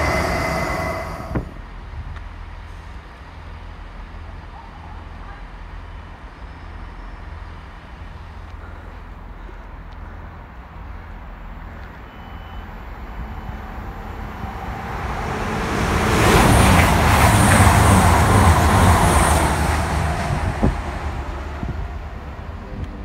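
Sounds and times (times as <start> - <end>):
train passing at speed: 0.0 - 4.5, 10.7 - 23.0.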